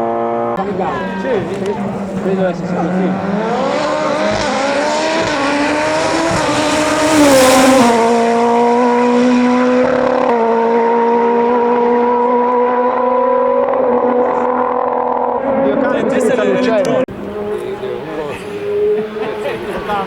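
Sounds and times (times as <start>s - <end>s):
race car engine accelerating: 0.0s - 20.0s.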